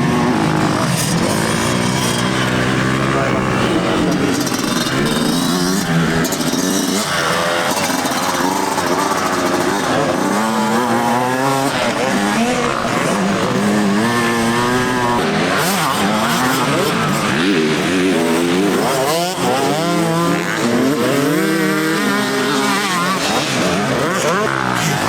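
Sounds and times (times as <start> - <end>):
motocross bikes revving: 0.0 - 25.0.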